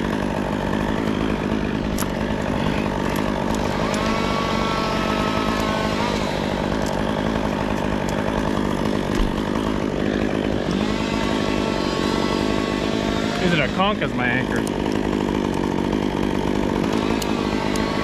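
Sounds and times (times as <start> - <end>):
chainsaw running: 0.0 - 18.0.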